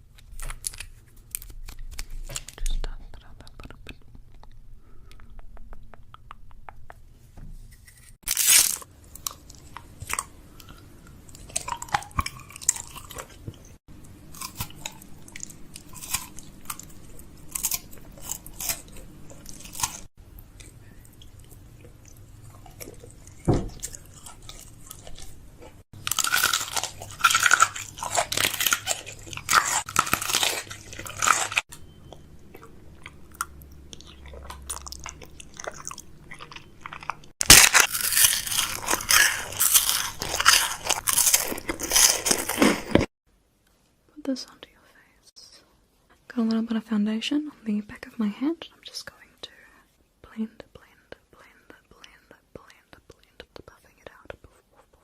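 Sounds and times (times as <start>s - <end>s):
crisp crunching and clicking: 0.1s - 3.0s, 22.5s - 31.8s, 32.6s - 43.1s.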